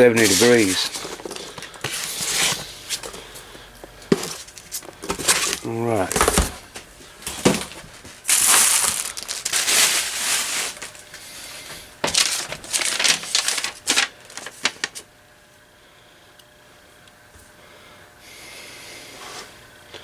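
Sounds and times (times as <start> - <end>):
packing material crinkling: 0.0 - 3.2, 4.2 - 11.2, 12.0 - 15.1.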